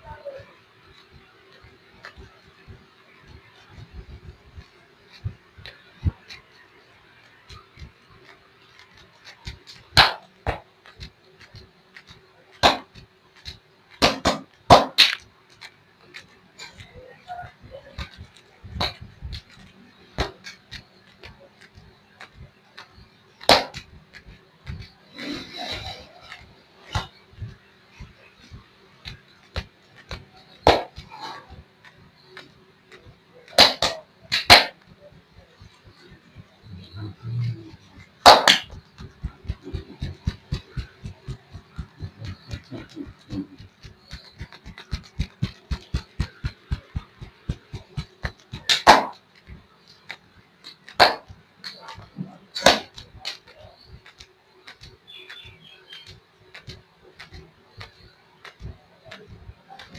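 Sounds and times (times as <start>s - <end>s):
hands slapping oiled skin: 17.8s - 25.0s, 37.8s - 59.9s.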